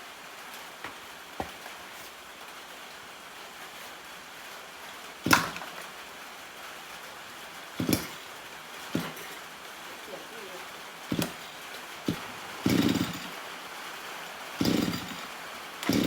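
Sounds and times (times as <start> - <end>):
steady low hiss: 0.0 - 14.6
sharp knocks: 5.3 - 5.7, 7.8 - 8.2, 9.0 - 9.4, 11.1 - 13.3.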